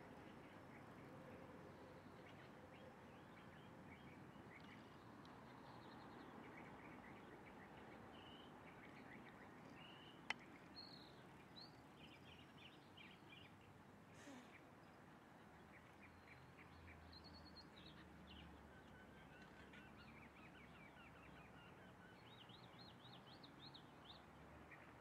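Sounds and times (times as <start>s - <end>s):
small birds chirping: 1.8s - 15.0s.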